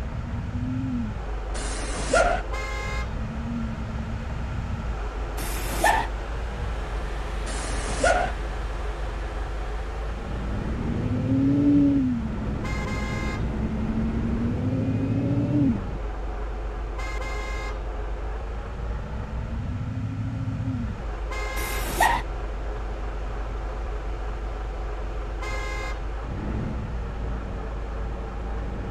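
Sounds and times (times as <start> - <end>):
heavy truck engine revving: 0.0 - 16.6, 18.0 - 28.9
truck horn toots: 2.0 - 3.1, 12.5 - 13.6, 17.0 - 17.8, 21.3 - 22.2, 25.4 - 26.0.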